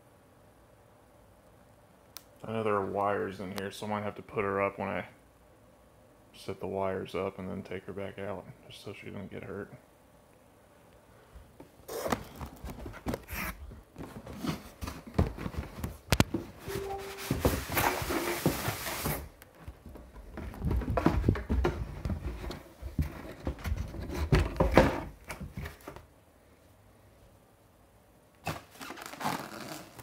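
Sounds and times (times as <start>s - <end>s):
cardboard and foam rustling: 11.9s - 26.1s
hissing scrape or tear: 16.7s - 19.3s.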